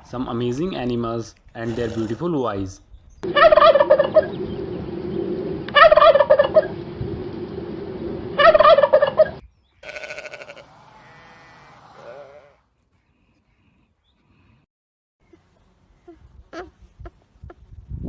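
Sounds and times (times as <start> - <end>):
farm animal rattling call: 1.6 - 2.4.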